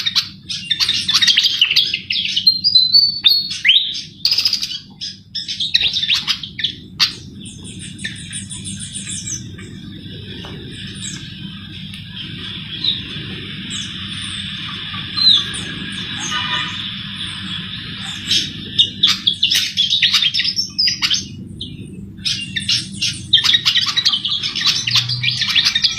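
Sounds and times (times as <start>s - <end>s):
bird chirps and trill: 0.0s - 25.9s
low rumble: 5.2s - 25.9s
steady high hiss: 9.6s - 19.8s.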